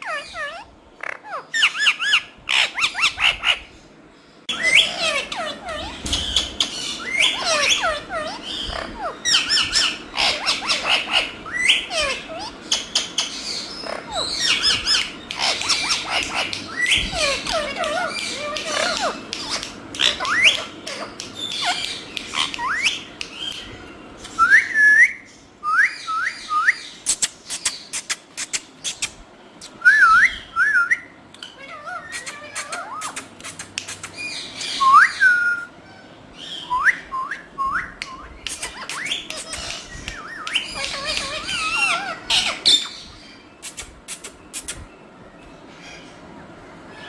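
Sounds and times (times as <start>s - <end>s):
parrot squawky chirps: 0.0s - 3.7s, 4.5s - 23.7s, 38.0s - 44.7s
parrot sharp clicks: 17.6s - 23.7s, 38.0s - 41.5s.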